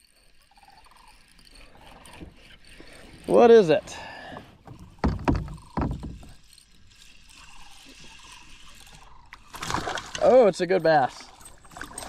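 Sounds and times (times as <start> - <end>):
faint water and handling noise: 0.0 - 12.0
dull knocks against kayak: 4.7 - 6.4.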